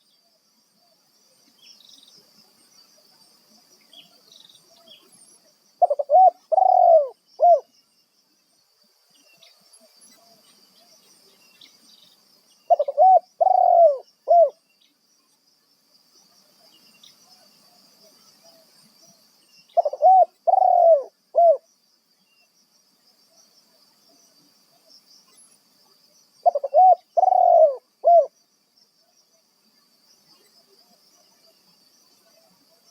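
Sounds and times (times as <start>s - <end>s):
dove cooing: 5.8s - 7.7s, 12.7s - 14.6s, 19.8s - 21.7s, 26.4s - 28.3s.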